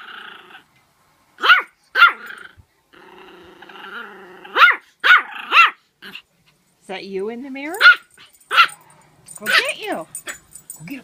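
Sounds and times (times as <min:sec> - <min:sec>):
dog growling: 0:00.0 - 0:00.6, 0:02.2 - 0:04.6
dog barking: 0:01.4 - 0:02.3, 0:04.6 - 0:05.8, 0:07.8 - 0:10.4.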